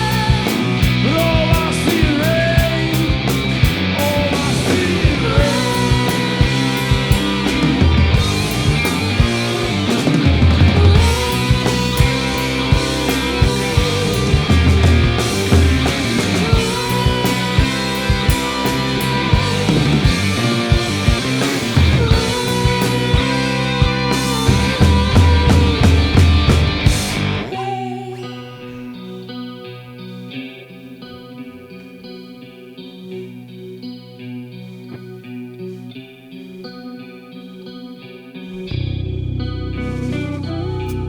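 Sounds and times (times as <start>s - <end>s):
electric guitar: 0.0s - 41.0s
instrumental rock band: 0.0s - 41.0s.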